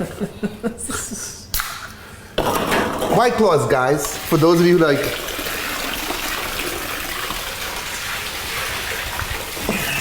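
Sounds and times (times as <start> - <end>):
liquid pouring into a sink: 4.0 - 10.0.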